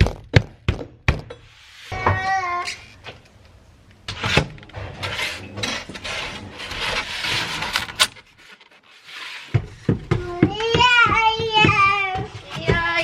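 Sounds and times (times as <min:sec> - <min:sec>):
foam board rubbing and scraping: 0:01.4 - 0:02.0, 0:04.2 - 0:13.0.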